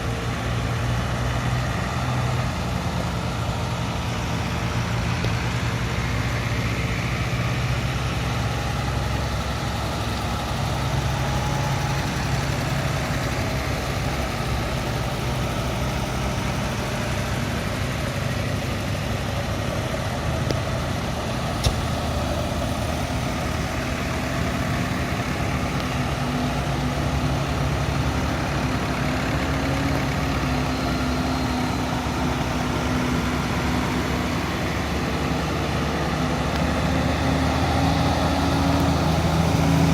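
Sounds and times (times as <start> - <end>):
engine humming steadily: 0.0 - 39.9
sharp click: 21.6 - 22.0.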